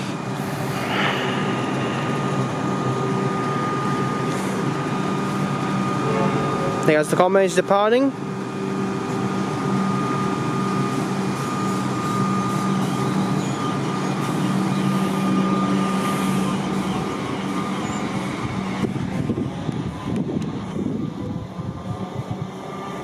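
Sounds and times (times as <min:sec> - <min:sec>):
electric train humming and whining: 0:00.0 - 0:23.0.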